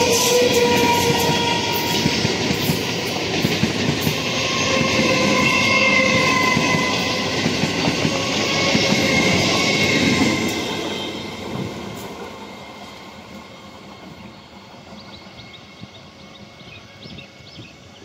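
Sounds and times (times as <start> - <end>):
distant train approaching: 0.0 - 18.0
electric train running past: 0.0 - 18.0.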